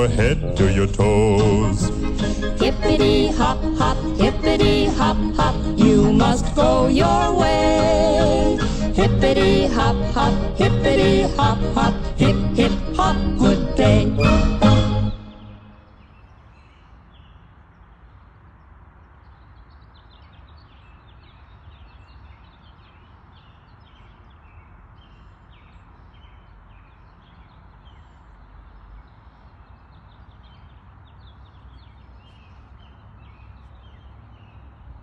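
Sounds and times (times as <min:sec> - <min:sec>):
steady low rumble: 0:00.0 - 0:14.2
small birds chirping: 0:15.8 - 0:35.0.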